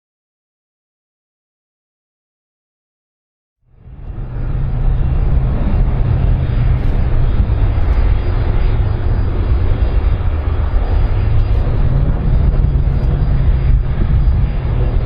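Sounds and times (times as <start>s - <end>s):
airplane engine rumble: 3.7s - 15.0s.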